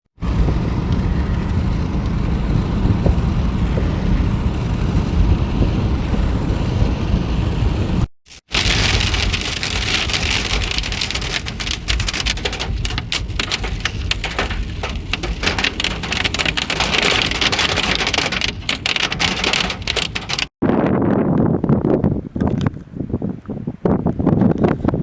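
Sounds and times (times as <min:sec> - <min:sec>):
hail and rain pelting: 0:08.4 - 0:20.5.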